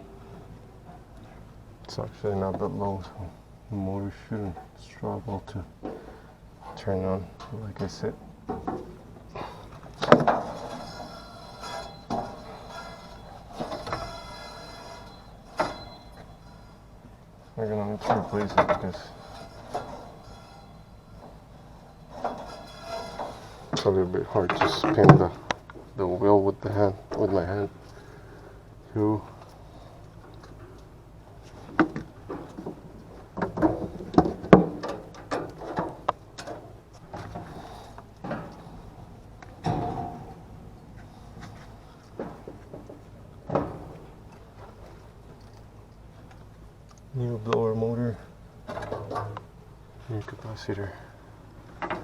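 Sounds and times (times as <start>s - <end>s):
low steady hum: 0.0s - 52.0s
metal rattle: 5.8s - 26.0s, 29.2s - 46.4s, 48.6s - 52.0s
tools and parts clattering: 5.8s - 26.0s, 29.2s - 46.6s, 48.1s - 52.0s
metallic clunks: 7.4s - 16.7s, 31.7s - 44.4s.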